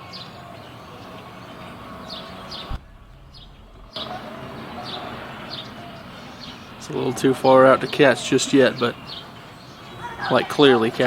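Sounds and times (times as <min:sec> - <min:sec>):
low background hum: 0:00.4 - 0:07.0.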